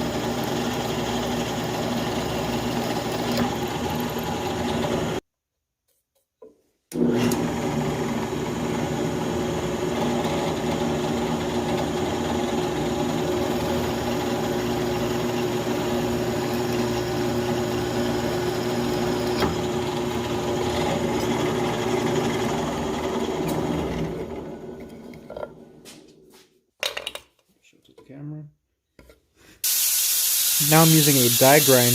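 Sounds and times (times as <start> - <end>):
electric drill drilling metal: 0.0 - 5.2, 7.0 - 24.3, 29.7 - 31.9.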